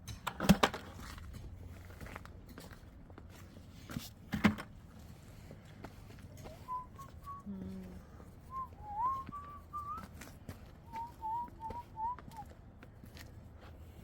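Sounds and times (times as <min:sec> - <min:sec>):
person whistling a tune: 0:06.4 - 0:07.6, 0:08.5 - 0:10.1, 0:10.9 - 0:12.5.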